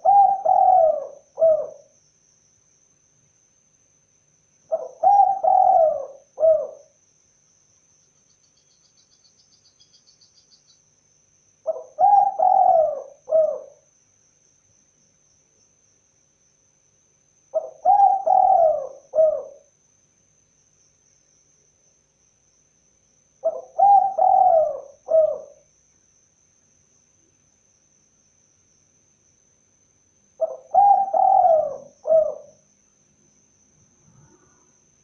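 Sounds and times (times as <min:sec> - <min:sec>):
dove cooing: 0:00.0 - 0:01.9, 0:04.7 - 0:06.9, 0:11.6 - 0:13.8, 0:17.5 - 0:19.7, 0:23.4 - 0:25.6, 0:30.4 - 0:32.6.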